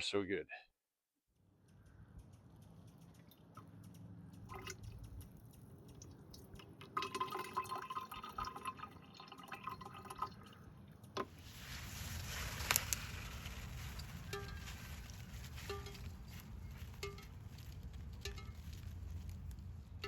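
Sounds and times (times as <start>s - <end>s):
water pouring: 4.5s - 5.0s, 6.0s - 14.7s
water trickling into a container: 4.5s - 13.2s.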